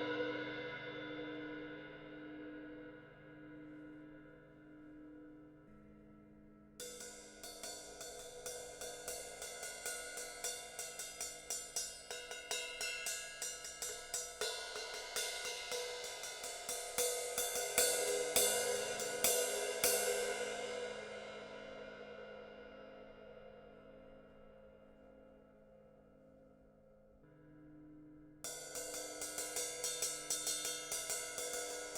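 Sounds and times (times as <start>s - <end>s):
crash cymbal struck: 6.8s - 24.2s.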